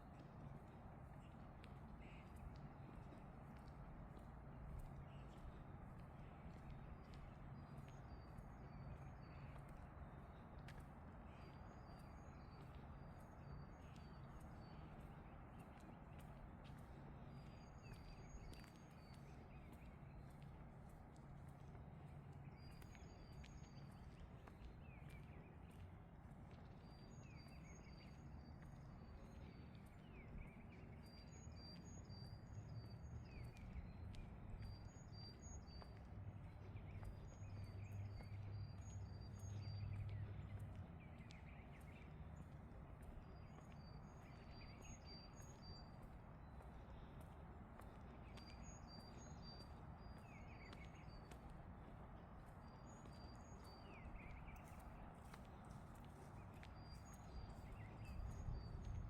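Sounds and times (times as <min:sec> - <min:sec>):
footsteps on a trail: 0:00.0 - 0:59.0
birds chirping: 0:26.6 - 0:59.0.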